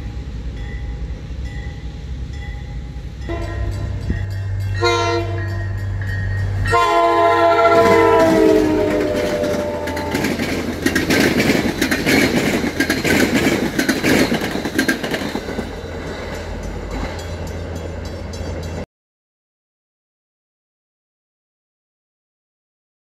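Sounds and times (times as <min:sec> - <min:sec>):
train wheels rumbling on rails: 0:00.0 - 0:18.8
train horn: 0:03.2 - 0:05.8, 0:06.6 - 0:10.6.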